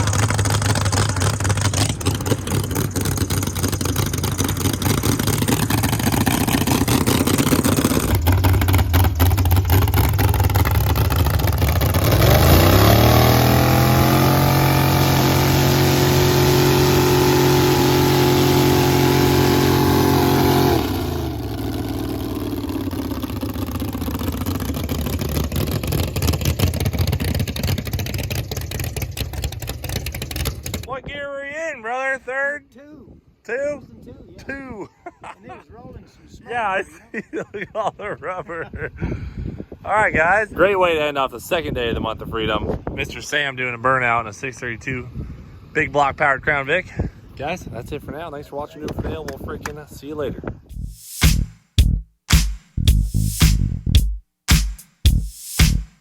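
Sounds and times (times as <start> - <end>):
car engine revving: 0.0 - 30.9.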